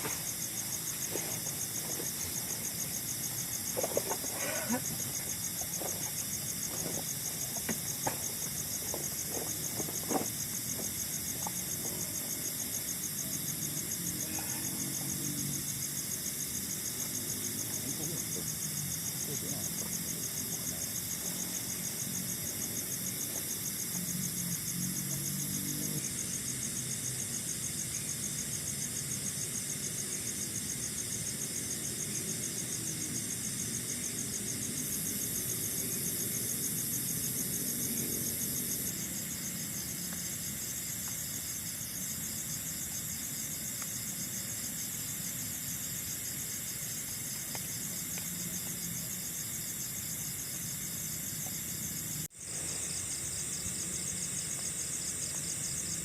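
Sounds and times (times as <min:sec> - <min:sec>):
crickets and insects trilling: 0:00.0 - 0:56.0.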